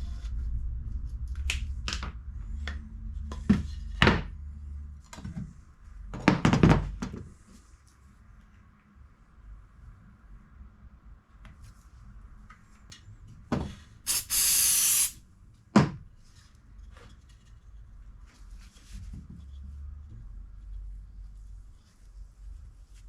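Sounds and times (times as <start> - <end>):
short spray-like hiss: 14.1 - 15.2.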